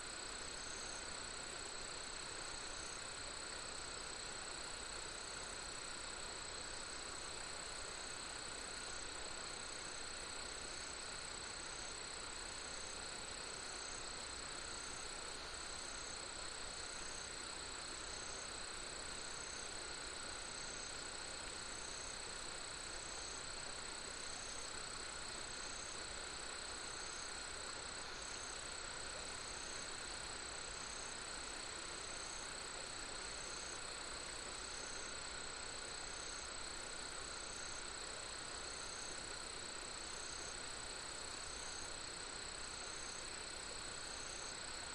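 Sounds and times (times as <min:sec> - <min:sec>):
crickets chirping: 0:00.0 - 0:44.9
soft background hiss: 0:00.0 - 0:44.9.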